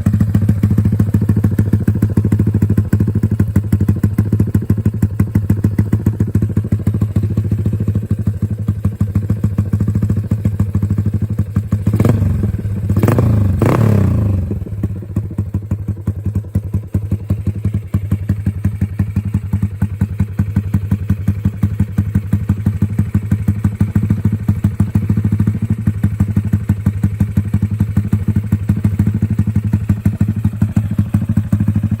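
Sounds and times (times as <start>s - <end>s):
motorcycle engine idling: 0.0s - 32.0s
throttle blips revving engine: 11.9s - 14.7s.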